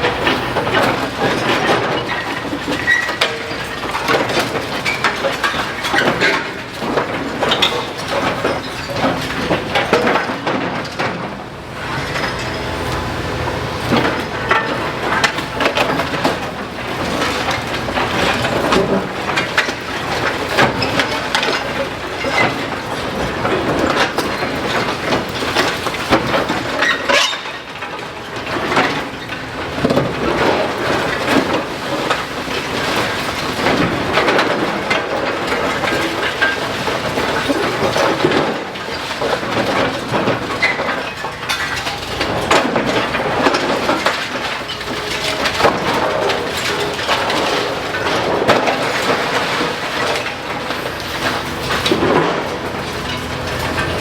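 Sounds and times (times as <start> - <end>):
masonry crunching and cracking: 0.0 - 54.0
debris clattering: 29.7 - 54.0.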